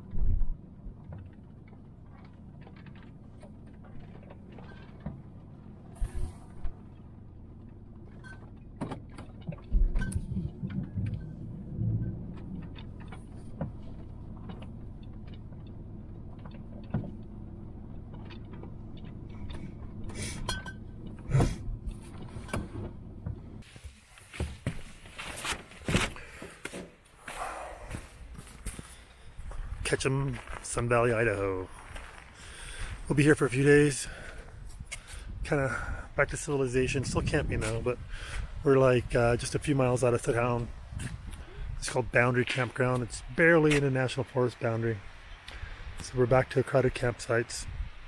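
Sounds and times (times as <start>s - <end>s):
van driving rumble: 0.0s - 48.0s.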